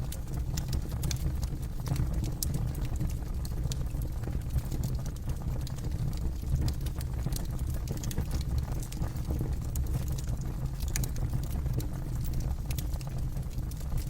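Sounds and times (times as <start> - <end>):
burning wood crackling and popping: 0.0 - 14.0
low rumble of flames: 0.0 - 14.0.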